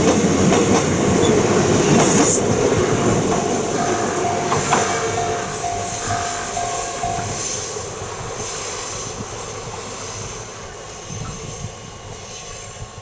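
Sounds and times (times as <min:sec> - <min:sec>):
train running noise: 0:00.0 - 0:13.0
level-crossing alarm tone: 0:02.7 - 0:08.1.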